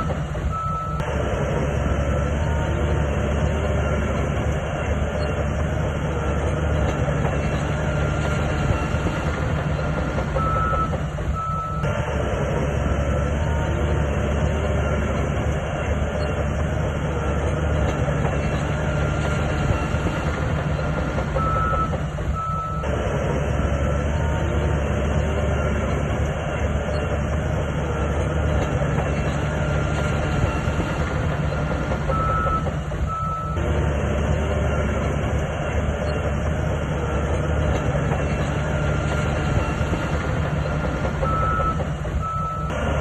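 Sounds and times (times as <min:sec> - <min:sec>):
bulldozer diesel engine running: 0:00.0 - 0:43.0
steel tracks clattering: 0:13.0 - 0:43.0.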